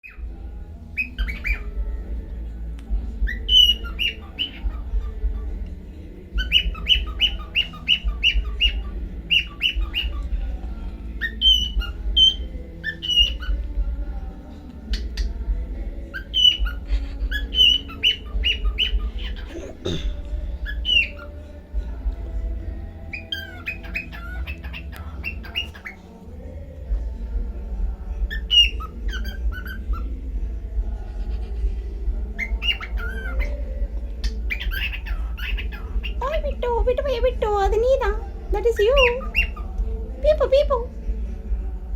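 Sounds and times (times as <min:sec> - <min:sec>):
steady low hum: 0:00.2 - 0:38.7
cockatiel chirping and squawking: 0:01.0 - 0:01.7, 0:03.3 - 0:05.6, 0:06.4 - 0:10.3, 0:11.2 - 0:13.6, 0:16.2 - 0:19.6, 0:20.6 - 0:21.3, 0:23.1 - 0:26.0, 0:28.3 - 0:30.1, 0:32.4 - 0:36.2, 0:38.8 - 0:39.8.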